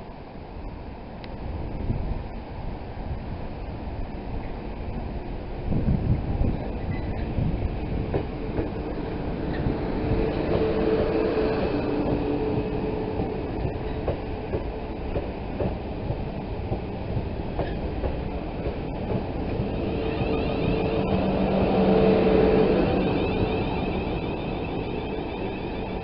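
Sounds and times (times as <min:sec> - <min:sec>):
train rumble: 0:00.0 - 0:26.0
electric whine: 0:19.6 - 0:26.0.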